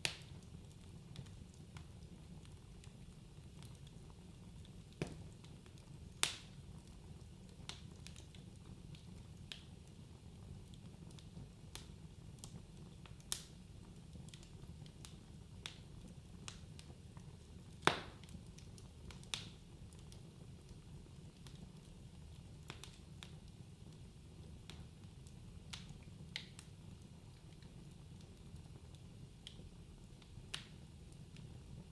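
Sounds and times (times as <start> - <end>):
wood fire crackling: 0.0 - 31.9.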